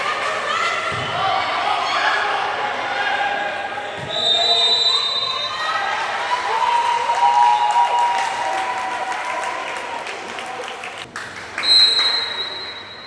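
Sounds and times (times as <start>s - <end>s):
shrill whistle blast: 4.1s - 5.6s, 11.6s - 13.0s
crowd clapping and cheering: 5.8s - 12.6s.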